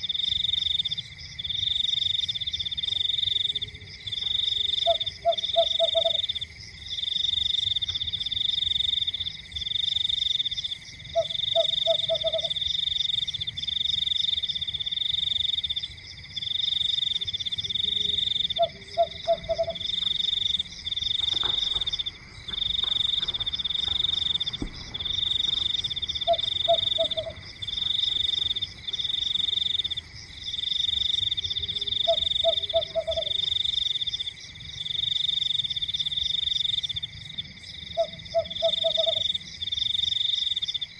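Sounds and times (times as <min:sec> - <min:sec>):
lower frog call: 0:02.9 - 0:06.5, 0:11.0 - 0:13.0, 0:16.7 - 0:30.1, 0:30.8 - 0:34.2, 0:37.8 - 0:40.6.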